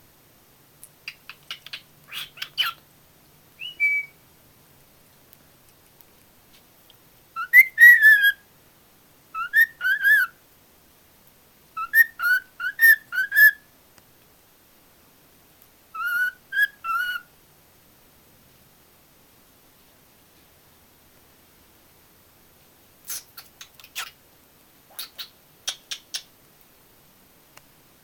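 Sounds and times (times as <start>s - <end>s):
cockatiel whistling: 3.6s - 4.2s, 7.4s - 8.4s, 9.4s - 10.4s, 11.8s - 13.6s, 16.0s - 17.3s.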